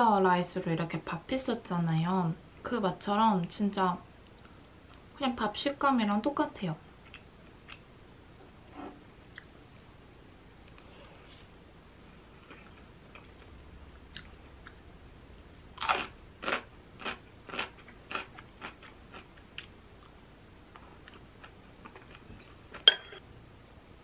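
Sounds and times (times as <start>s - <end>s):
person chewing food: 7.0s - 7.9s, 9.3s - 9.9s, 12.3s - 14.8s, 15.8s - 22.9s
cutlery clinking on bowl: 22.4s - 23.2s.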